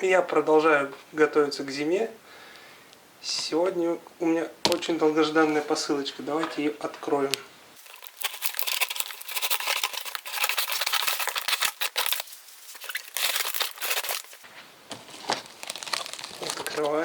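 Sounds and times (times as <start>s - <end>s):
packaging crackling and rustling: 7.8s - 17.0s.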